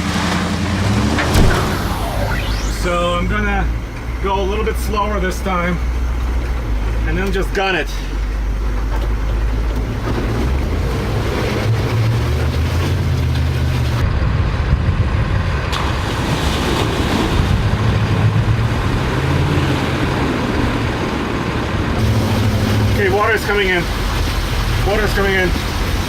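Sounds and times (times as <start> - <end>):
water splashing: 0.0 - 3.2, 9.8 - 14.0, 15.7 - 26.0
diesel truck engine under throttle: 0.0 - 26.0
wind noise: 9.4 - 23.0.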